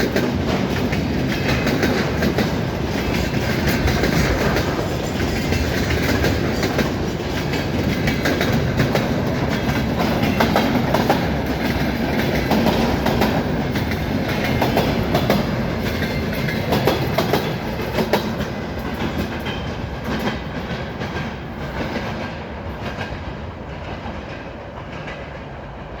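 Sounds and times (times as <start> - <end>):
train wheels clacking over rail joints: 0.0 - 25.9.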